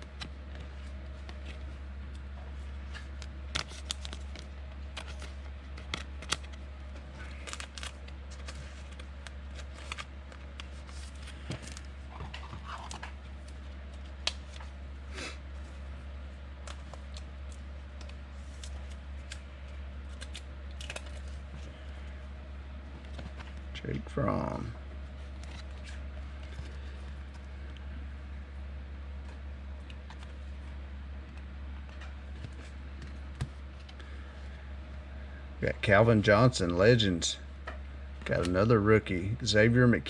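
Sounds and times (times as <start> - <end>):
steady low hum: 0.0 - 40.0
trading cards clicking and rustling: 0.1 - 14.8, 16.6 - 22.1, 25.2 - 27.8, 29.2 - 34.2.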